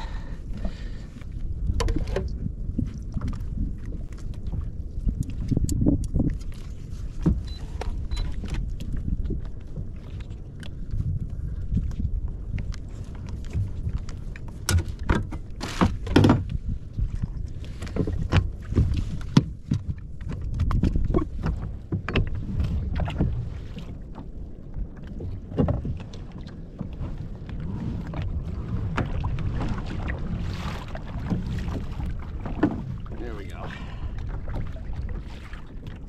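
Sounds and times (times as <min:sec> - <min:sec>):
wind and water rumble: 0:00.0 - 0:36.0
knocks against kayak hull: 0:14.6 - 0:16.5.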